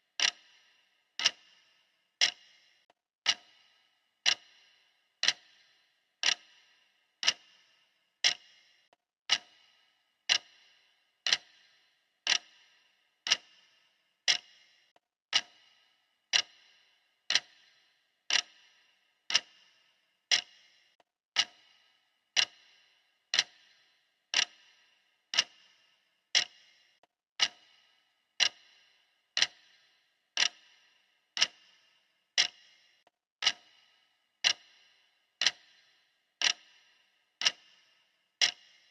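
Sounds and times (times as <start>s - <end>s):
clock ticking: 0.0s - 38.9s.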